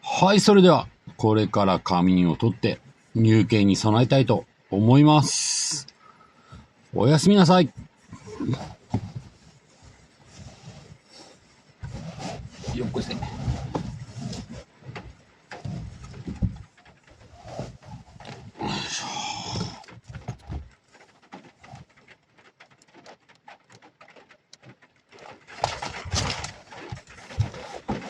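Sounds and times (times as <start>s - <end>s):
rustling inside a car: 0.1s - 28.0s
clatter: 8.4s - 28.0s.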